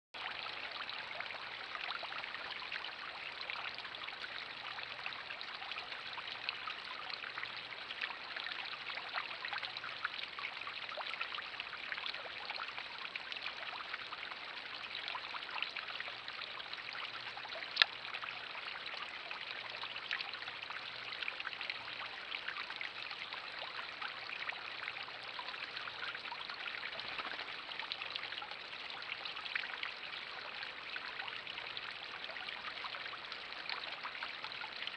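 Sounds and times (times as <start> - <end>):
trickling water: 0.2 - 34.9
small ticks: 17.6 - 18.0.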